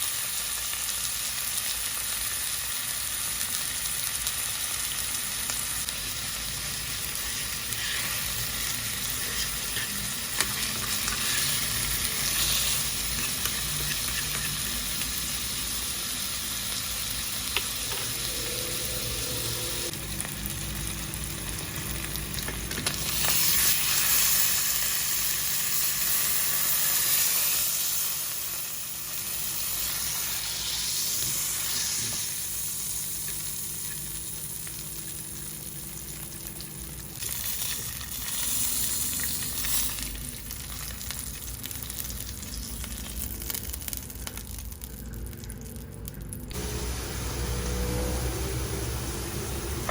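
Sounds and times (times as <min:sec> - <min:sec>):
beef sizzling in butter: 0:00.0 - 0:45.1.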